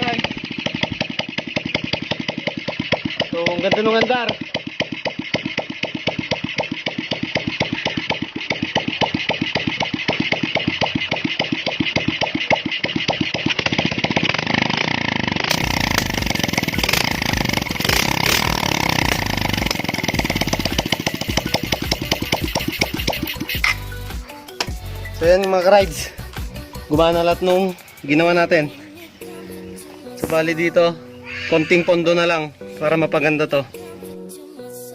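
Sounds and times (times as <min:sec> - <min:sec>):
motorcycle engine running: 0:00.0 - 0:27.4.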